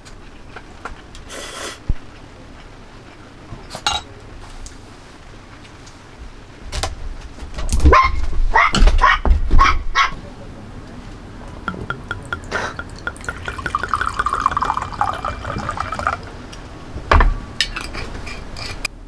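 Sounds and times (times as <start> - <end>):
dog barking: 7.9 - 10.2
dishes and cutlery clinking: 11.7 - 16.1.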